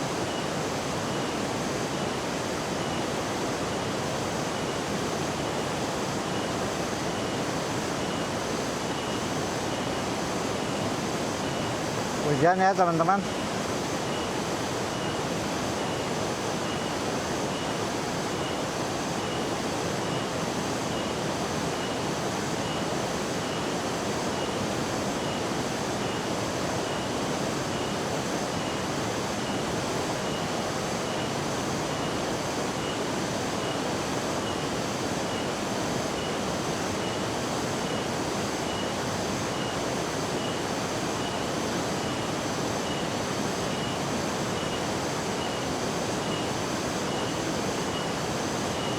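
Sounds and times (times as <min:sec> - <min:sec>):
rain: 0:00.0 - 0:48.9
waterfall roaring: 0:00.0 - 0:48.9
faint high beep: 0:14.1 - 0:15.2, 0:15.8 - 0:17.7, 0:43.7 - 0:44.0, 0:44.6 - 0:48.9.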